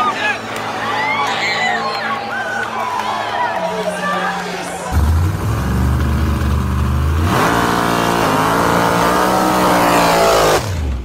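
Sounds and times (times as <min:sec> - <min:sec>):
drag car engine revving: 0:04.9 - 0:11.0.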